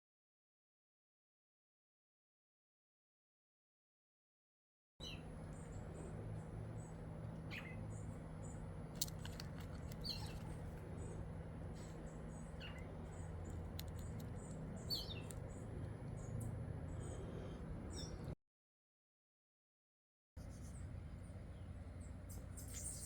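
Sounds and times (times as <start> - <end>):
birds chirping: 5.0 - 18.4
steady low hum: 5.0 - 18.4, 20.4 - 23.0.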